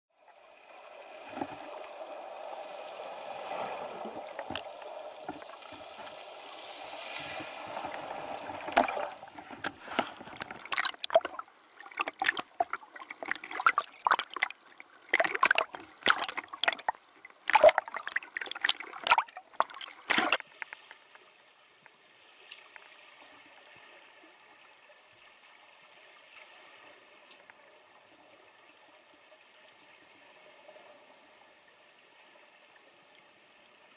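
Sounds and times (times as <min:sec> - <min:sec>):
water sloshing and gurgling: 0:00.1 - 0:33.4
sharp water splashes: 0:09.8 - 0:20.4.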